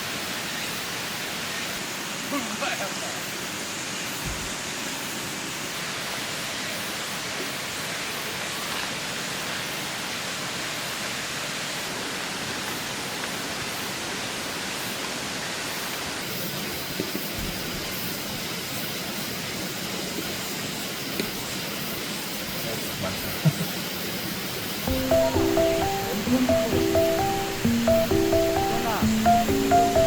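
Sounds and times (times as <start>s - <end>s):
stream water rushing: 0.0s - 17.0s, 23.8s - 30.0s.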